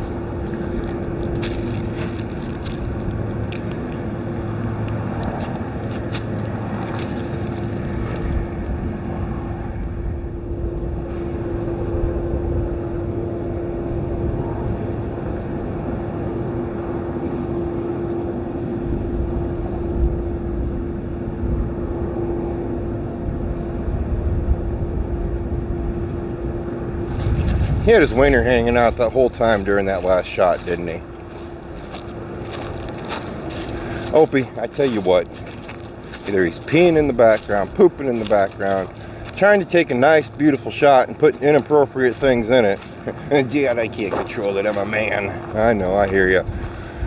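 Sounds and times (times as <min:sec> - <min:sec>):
wind rumbling on microphone: 0:00.0 - 0:47.0
truck engine idling: 0:27.9 - 0:47.0.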